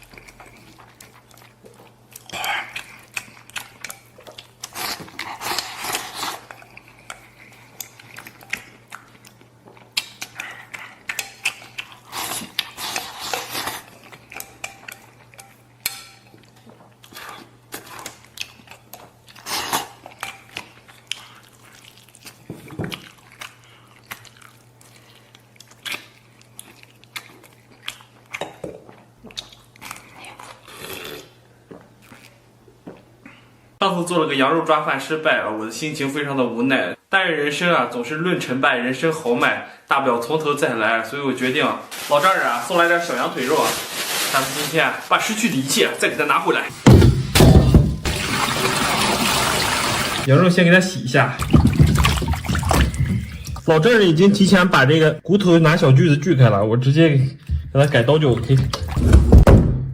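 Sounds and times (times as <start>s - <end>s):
person chewing: 0.0s - 33.1s, 51.4s - 53.7s.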